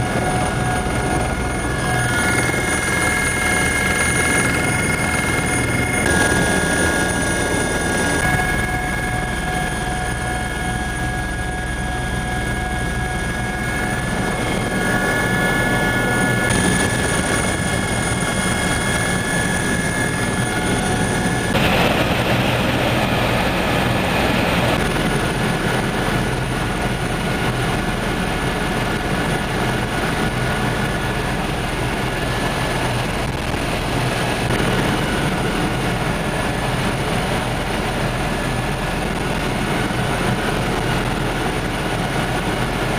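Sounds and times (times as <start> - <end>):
helicopter rotor and engine noise: 0.0 - 42.9.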